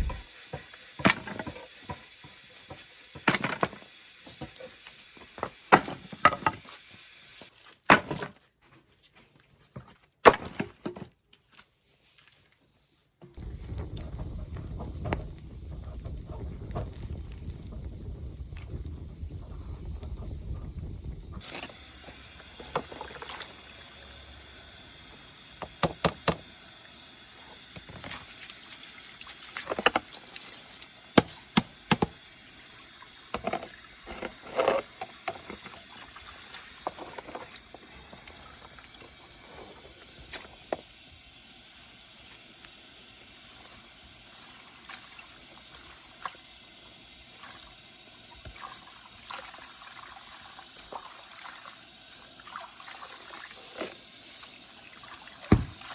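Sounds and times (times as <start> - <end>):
wood fire crackling and popping: 0.0 - 0.3, 13.4 - 23.8
steady hiss: 0.0 - 7.5, 13.4 - 44.6.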